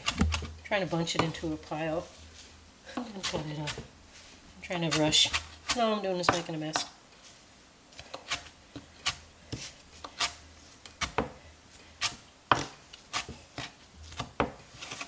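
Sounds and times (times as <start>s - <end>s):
knife chopping on cutting board: 12.0s - 14.6s.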